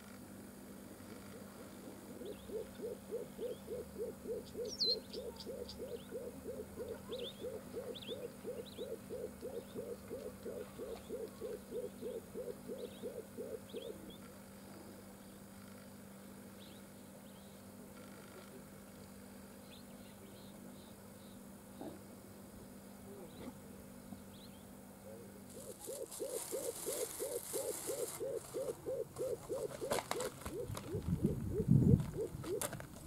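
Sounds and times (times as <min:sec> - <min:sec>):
bird hooting: 0:01.1 - 0:15.0, 0:24.3 - 0:32.8.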